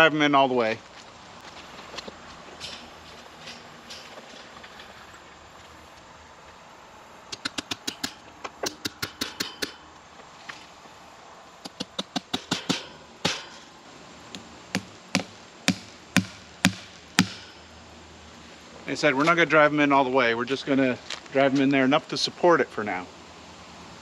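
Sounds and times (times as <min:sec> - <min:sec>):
hammer driving staples into wood: 0:07.4 - 0:09.8, 0:11.7 - 0:13.5, 0:14.8 - 0:17.5.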